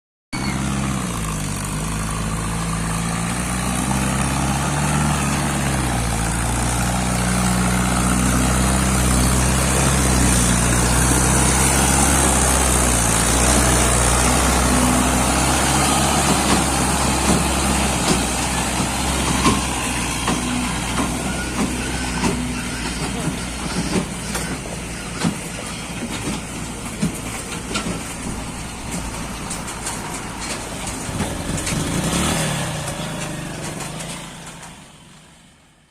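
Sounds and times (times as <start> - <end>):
tractor diesel engine running: 0.4 - 35.9
knocks and rattles: 6.3 - 34.8.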